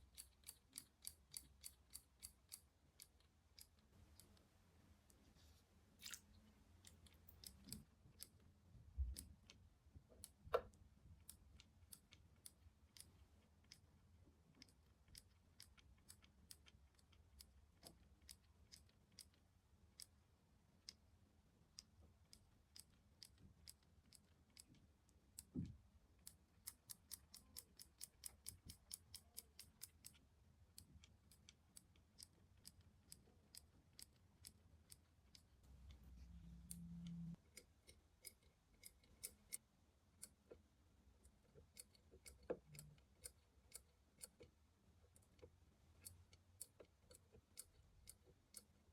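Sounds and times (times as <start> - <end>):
faint sharp clicks and taps: 21.8 - 48.7.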